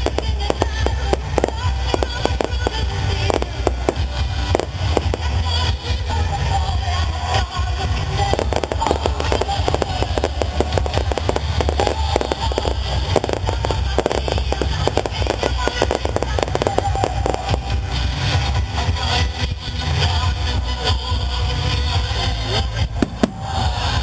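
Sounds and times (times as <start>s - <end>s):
fireworks crackling: 0.0s - 24.0s
music playing: 0.0s - 24.0s.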